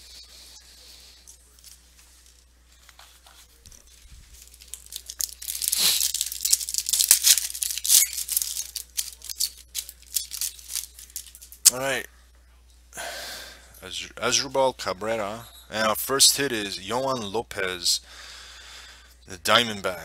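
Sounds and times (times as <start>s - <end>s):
foil wrapper tearing and crinkling: 4.2s - 11.8s.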